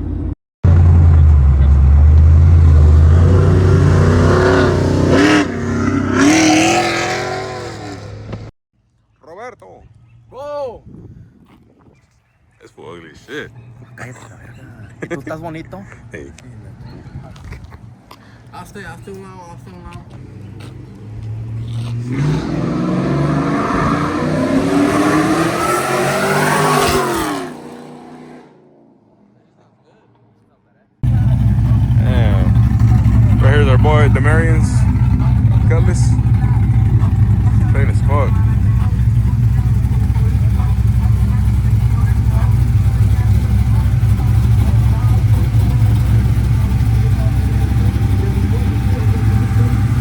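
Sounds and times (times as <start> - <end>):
engine exhaust droning and revving: 0.0 - 8.5, 19.4 - 29.4, 31.0 - 50.0.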